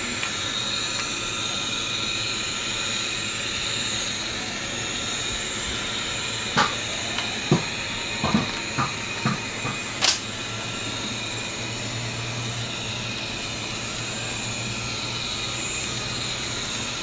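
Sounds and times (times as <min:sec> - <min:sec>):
model locomotive engine drone: 0:00.0 - 0:17.0
sharp clicks: 0:10.0 - 0:10.2.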